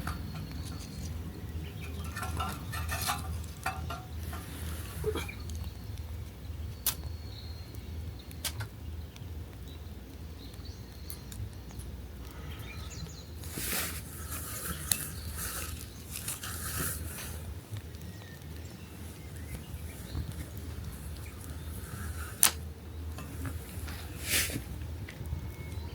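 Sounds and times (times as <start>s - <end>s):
rustling and scraping: 0.0s - 5.7s, 13.4s - 25.3s
sharp ticks and clicks: 5.5s - 12.4s.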